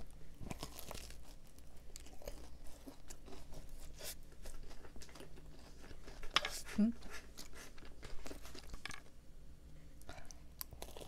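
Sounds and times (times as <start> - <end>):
small crunches: 0.4 - 6.4
biting and chewing: 0.4 - 9.0, 10.0 - 11.0.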